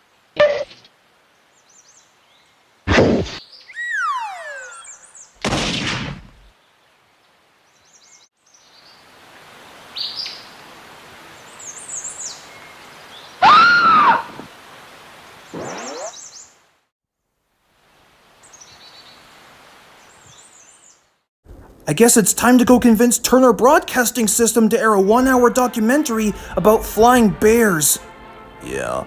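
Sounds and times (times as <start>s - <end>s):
outdoor ambience: 0.0s - 2.2s, 2.8s - 16.8s, 21.5s - 29.0s
cartoon hit: 2.9s - 6.4s
cartoon crash: 2.9s - 6.5s
bird chirps: 3.4s - 5.4s, 15.6s - 16.5s
falling whistle: 3.7s - 5.2s, 13.4s - 14.3s
loud rising and falling call: 3.7s - 5.3s, 13.4s - 14.4s.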